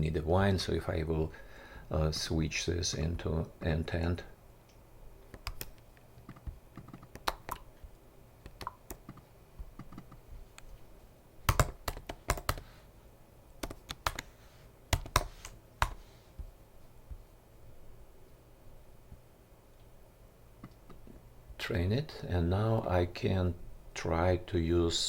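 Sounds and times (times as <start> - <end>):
typing on computer keyboard: 5.3 - 7.6, 8.4 - 9.2, 9.8 - 10.2, 11.5 - 12.6, 13.6 - 14.3, 14.9 - 16.0.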